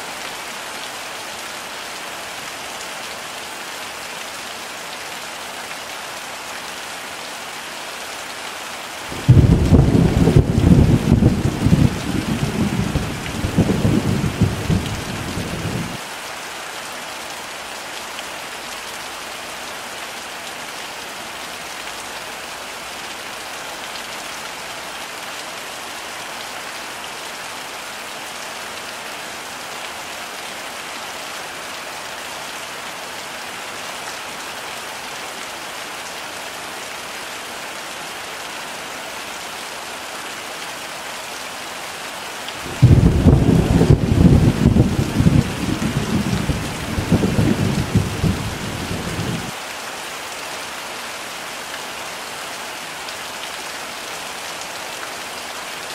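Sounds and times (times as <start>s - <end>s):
heavy rain falling: 0.0s - 55.9s
low rumble of thunder: 9.2s - 16.0s, 42.7s - 49.5s.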